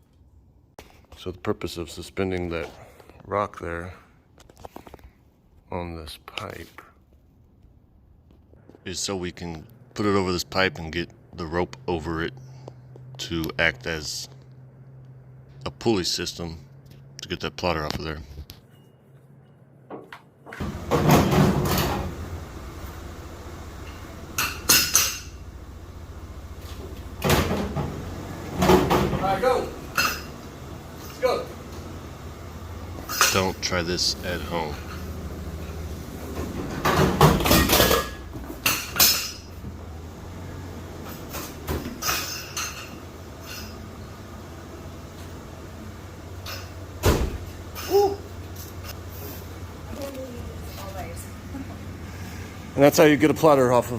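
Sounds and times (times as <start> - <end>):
equipment clunking and rattling: 19.9 - 22.8, 23.8 - 32.0, 34.8 - 40.4.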